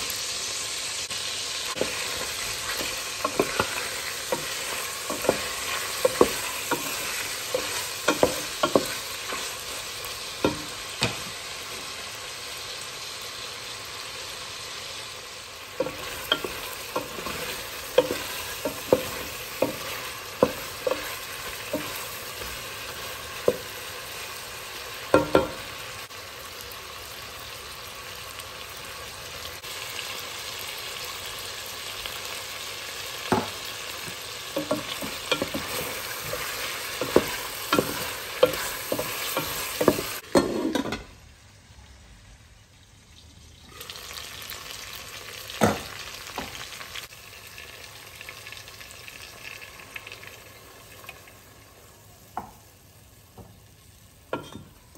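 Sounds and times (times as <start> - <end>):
chicken sizzling in a pot: 0.0 - 54.9
wooden spoon scraping a pot: 1.8 - 9.7, 15.8 - 23.7, 34.6 - 41.0.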